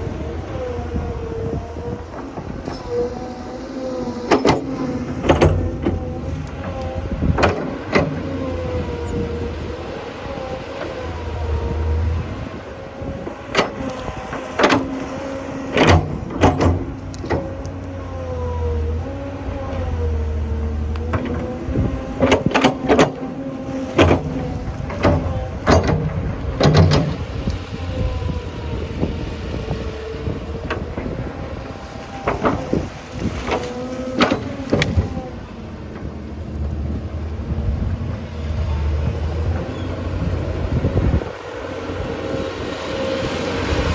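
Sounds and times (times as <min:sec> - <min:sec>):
tractor engine running: 0:00.0 - 0:43.9
heavy knocks and clanks: 0:13.5 - 0:17.6, 0:21.0 - 0:28.4.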